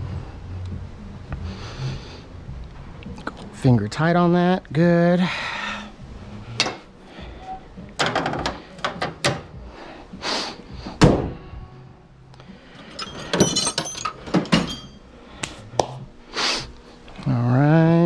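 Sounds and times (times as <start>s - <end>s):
loud thunk: 11.0s - 11.4s.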